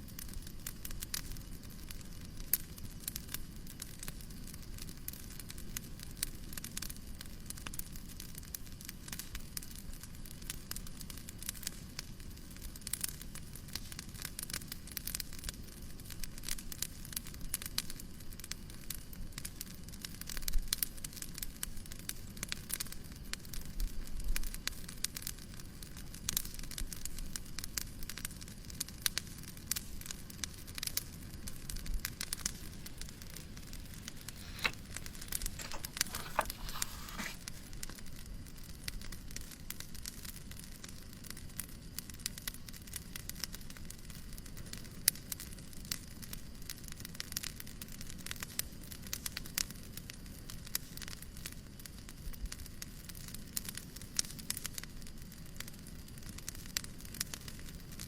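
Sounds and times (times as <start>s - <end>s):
wood fire crackling: 29.8s - 38.0s
soft hiss: 32.2s - 37.9s.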